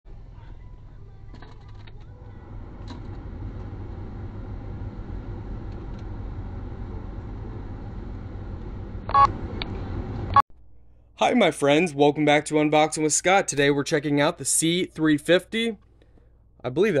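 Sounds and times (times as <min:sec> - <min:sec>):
car engine idling: 0:00.1 - 0:10.4.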